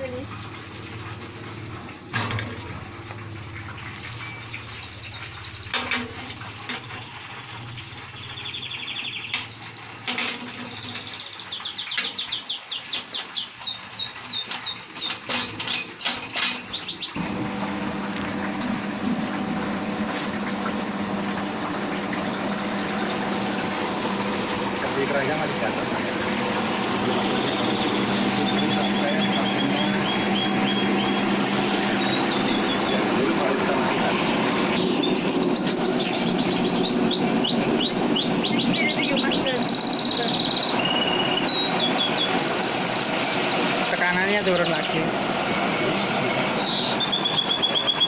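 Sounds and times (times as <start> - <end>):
songbird chirping and singing: 8.2 - 10.0, 34.8 - 48.0
low machine hum: 13.5 - 48.0
machine motor running: 17.1 - 48.0.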